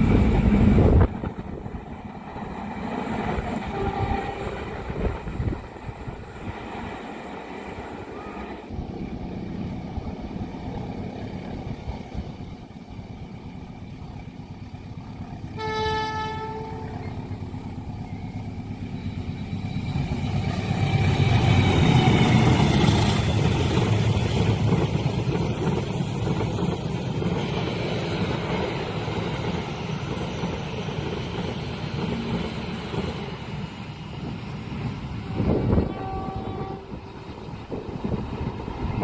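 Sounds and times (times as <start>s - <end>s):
train wheels rumbling on rails: 0.0s - 39.0s
train horn blast: 3.6s - 4.7s, 15.5s - 17.3s, 35.5s - 37.1s.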